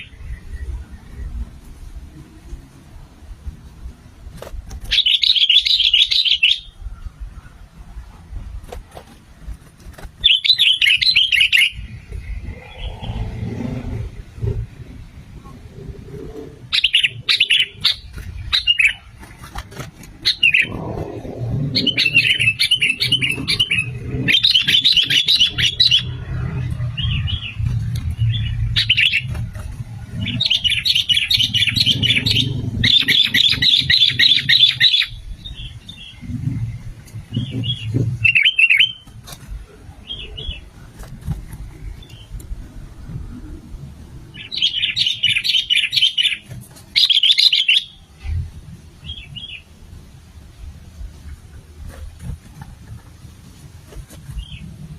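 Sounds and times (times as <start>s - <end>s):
bulbuls chirping: 4.7s - 7.7s, 9.8s - 13.9s, 15.5s - 42.4s, 44.3s - 48.3s, 49.0s - 49.8s
low rumble: 11.8s - 19.4s, 20.0s - 38.4s.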